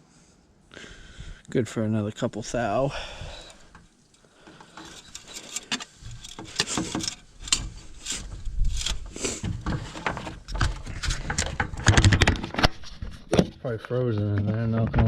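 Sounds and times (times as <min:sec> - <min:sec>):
hands handling engine parts: 0:03.5 - 0:13.6.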